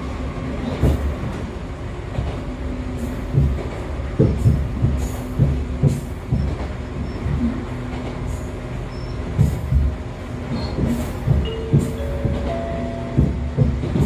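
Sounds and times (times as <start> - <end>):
train low rumble and hum: 0.0 - 14.0
wheels thumping over rail joints: 9.3 - 14.0.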